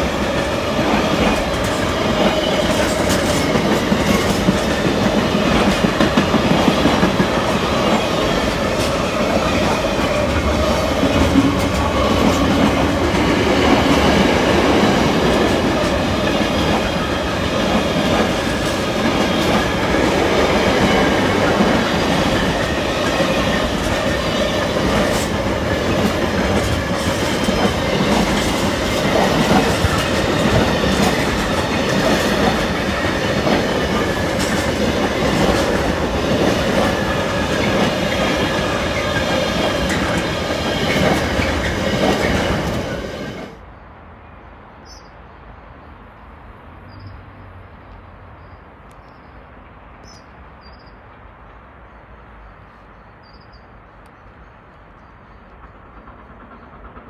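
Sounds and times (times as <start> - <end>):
freight train rolling past: 0.0 - 45.2, 49.5 - 57.0
quiet station background: 0.0 - 57.0.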